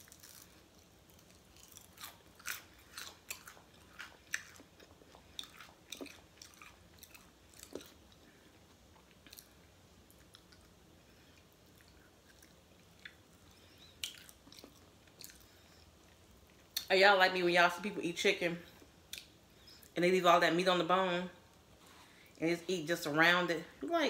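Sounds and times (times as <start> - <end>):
crispy chicken wing crunching: 0.0 - 8.2.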